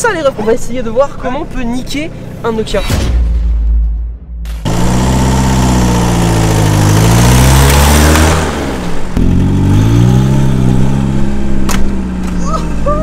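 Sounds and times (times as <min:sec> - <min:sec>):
car engine accelerating: 0:04.5 - 0:13.0.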